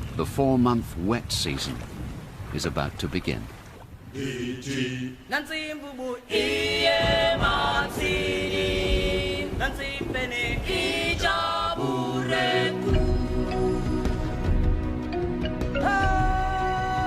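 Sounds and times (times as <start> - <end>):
choir singing held notes: 4.1 - 17.0.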